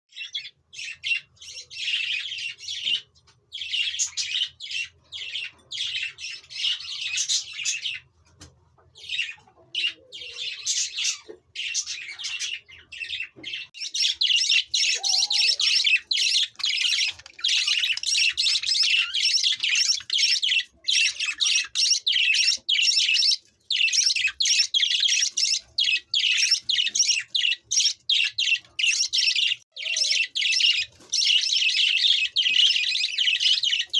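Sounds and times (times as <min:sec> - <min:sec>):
budgerigars chattering and warbling: 0:09.0 - 0:33.9.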